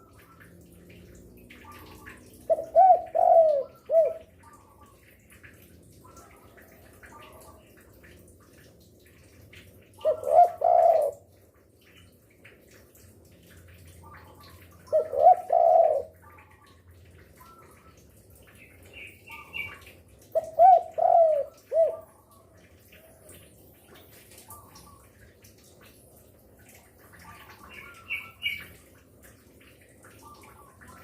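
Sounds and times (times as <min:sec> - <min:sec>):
dove cooing: 0:01.7 - 0:04.3, 0:10.0 - 0:11.2, 0:14.8 - 0:16.6, 0:20.3 - 0:22.2.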